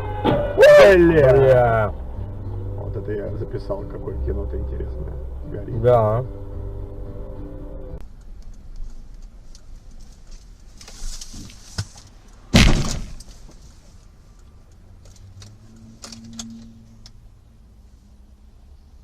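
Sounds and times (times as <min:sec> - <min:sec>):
car crash: 0:00.0 - 0:01.9, 0:12.4 - 0:13.7
vehicle rumble: 0:00.0 - 0:19.0.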